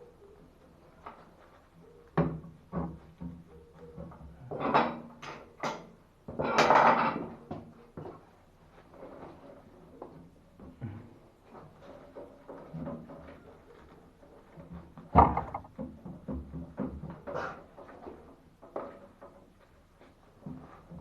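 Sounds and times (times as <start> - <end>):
metal plumbing parts knocking: 15.1 - 17.2.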